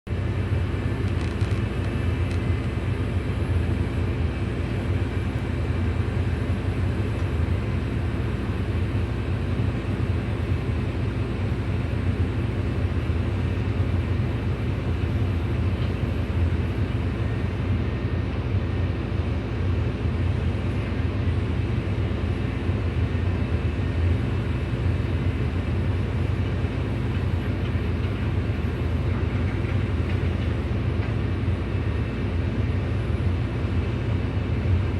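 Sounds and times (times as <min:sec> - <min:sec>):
excavator diesel engine droning: 0:00.1 - 0:34.9.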